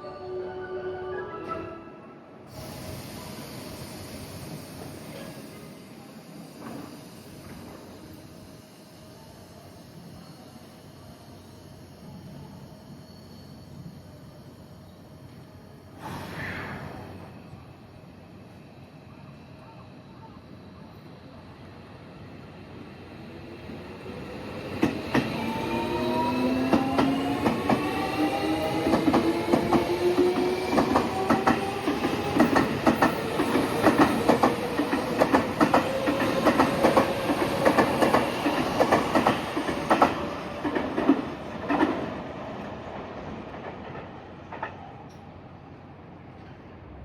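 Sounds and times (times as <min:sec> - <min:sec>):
train wheels clacking: 0:24.6 - 0:42.2.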